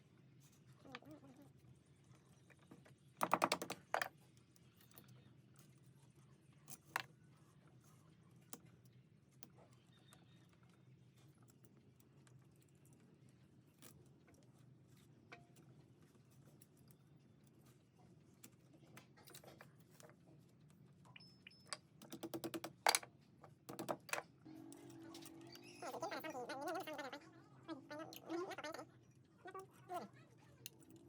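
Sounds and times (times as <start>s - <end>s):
faint low hum: 23.2s - 31.0s.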